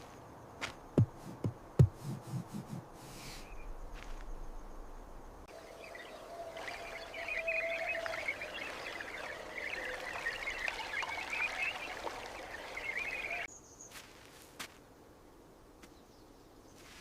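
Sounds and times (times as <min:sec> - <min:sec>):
many birds chirping: 0:05.5 - 0:13.5.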